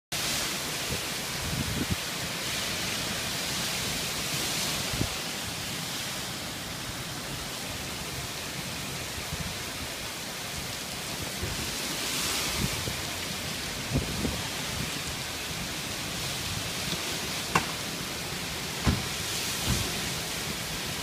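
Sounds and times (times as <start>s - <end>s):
heavy rain hissing: 0.1s - 21.0s
low thumps: 18.8s - 19.9s.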